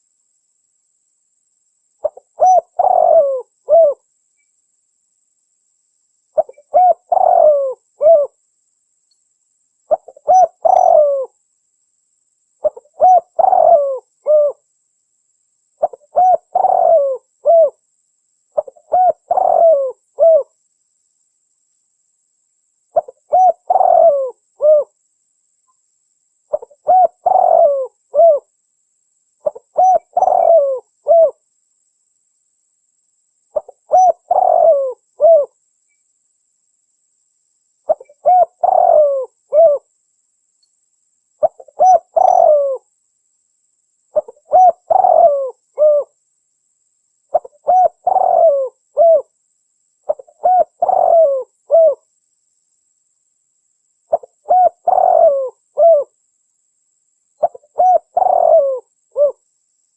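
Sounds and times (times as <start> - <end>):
dove cooing: 2.0 - 4.0, 6.4 - 8.4, 9.9 - 11.3, 12.6 - 14.6, 15.8 - 17.8, 18.6 - 20.5, 23.0 - 25.0, 26.5 - 28.5, 29.4 - 31.4, 33.6 - 35.6, 37.9 - 39.9, 41.4 - 42.8, 44.2 - 46.2, 47.3 - 49.3, 50.1 - 52.0, 54.1 - 56.1, 57.4 - 59.4.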